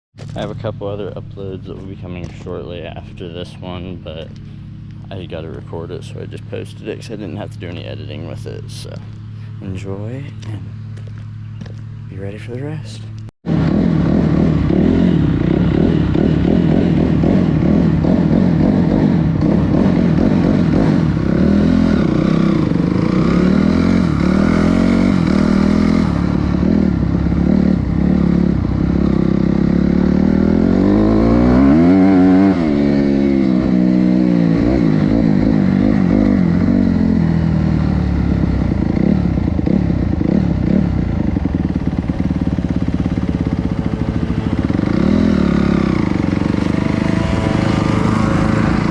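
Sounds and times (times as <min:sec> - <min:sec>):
dirt bike engine revving: 0:13.5 - 0:48.9.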